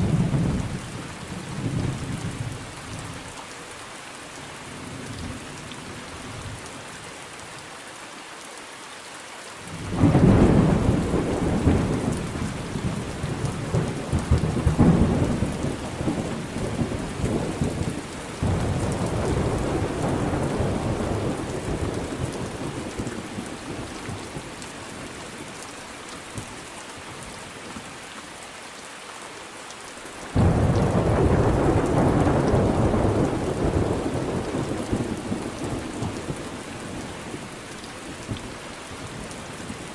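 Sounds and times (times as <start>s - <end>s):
steady rain: 0.0s - 39.9s
thunder rolling: 9.9s - 23.5s, 30.4s - 36.3s.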